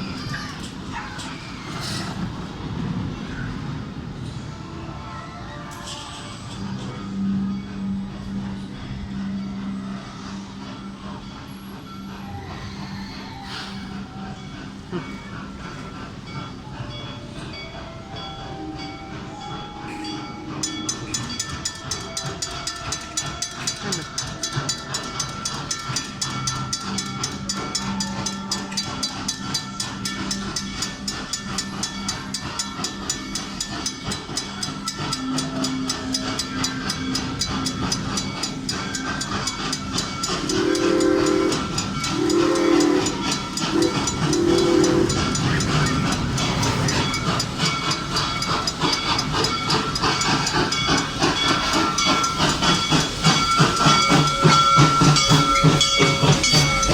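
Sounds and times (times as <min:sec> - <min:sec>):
small train ticking past: 0:00.0 - 0:56.9
train whistle blasts: 0:40.4 - 0:46.8.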